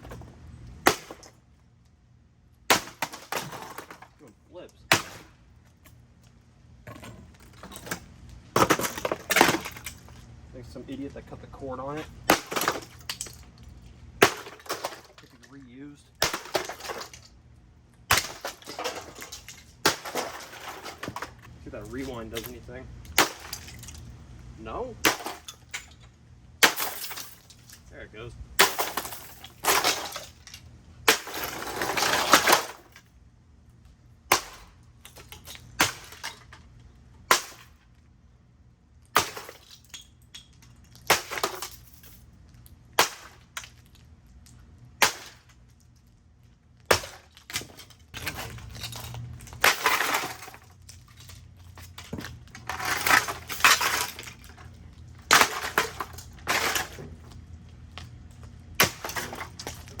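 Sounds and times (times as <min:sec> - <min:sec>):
crash and clatter of breaking housing: 0:02.7 - 0:04.3, 0:06.9 - 0:10.2, 0:12.1 - 0:17.4, 0:18.1 - 0:24.2, 0:25.0 - 0:27.9, 0:28.6 - 0:33.1, 0:34.3 - 0:37.8, 0:39.1 - 0:42.1, 0:46.8 - 0:57.3, 0:58.7 - 1:00.0.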